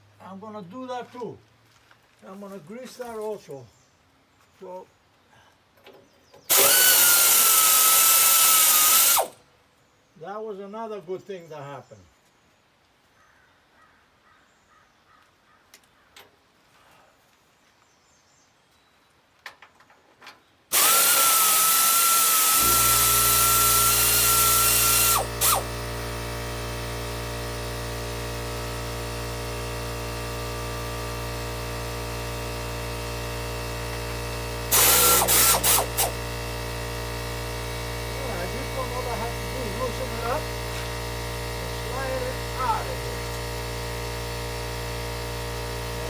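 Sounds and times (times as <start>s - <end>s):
compressor motor humming: 6.5s - 9.4s, 20.7s - 46.0s.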